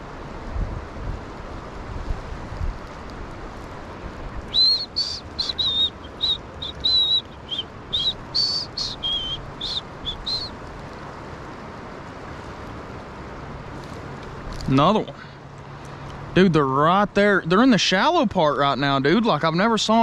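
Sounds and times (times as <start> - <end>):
water noise: 0.0 - 20.0
wind: 0.0 - 20.0
songbird whistling: 4.5 - 10.6.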